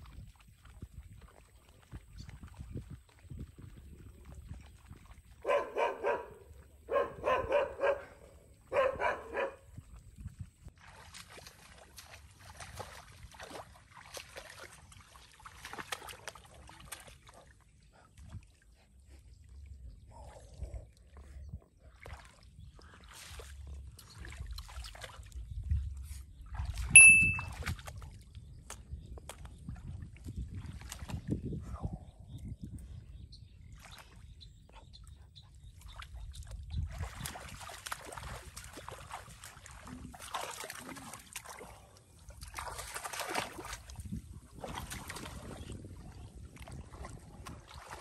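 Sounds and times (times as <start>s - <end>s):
dog barking: 5.4s - 9.7s.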